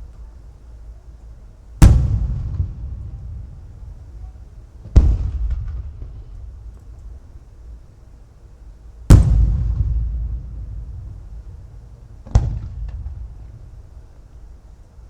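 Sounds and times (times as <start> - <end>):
firework shells bursting with echo: 1.8 - 7.8, 9.1 - 14.0
low rumble: 9.1 - 14.4.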